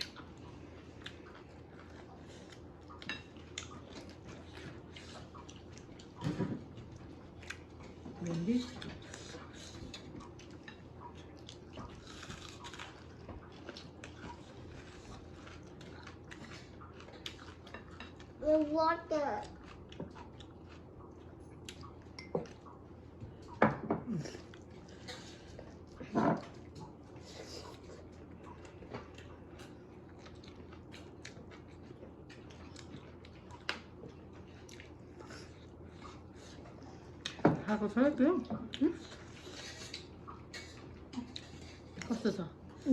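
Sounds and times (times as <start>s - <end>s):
low steady hum: 0.0s - 42.9s
person chewing and biting food: 9.0s - 18.4s, 19.4s - 23.6s, 24.3s - 37.4s.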